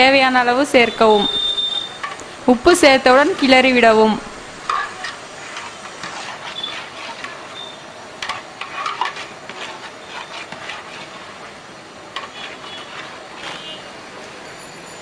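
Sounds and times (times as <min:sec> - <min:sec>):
food sizzling in oil: 0:00.1 - 0:15.0
ladle scraping a pot: 0:04.6 - 0:14.0.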